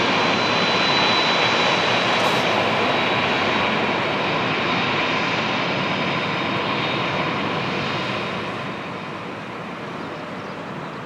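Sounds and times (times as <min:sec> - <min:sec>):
jet airliner engines roaring: 0:00.0 - 0:11.0.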